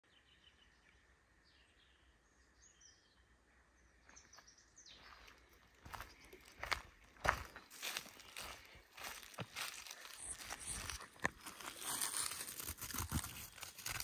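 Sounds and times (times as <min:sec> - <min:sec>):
faint birdsong chirps: 0:00.0 - 0:12.6
crunching footsteps: 0:04.0 - 0:14.0.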